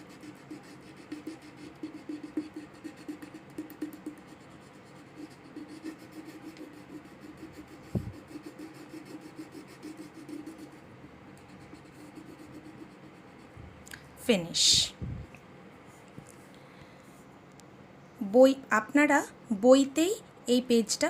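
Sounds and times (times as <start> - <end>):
colouring strokes scratching on paper: 0.0 - 13.6.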